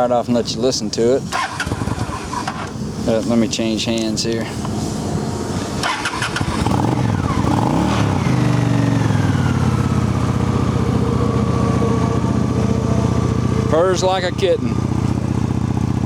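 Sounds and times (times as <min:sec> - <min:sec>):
motorcycle starter cranking: 0:01.3 - 0:02.8, 0:05.8 - 0:07.5
motorcycle engine idling: 0:03.9 - 0:16.0.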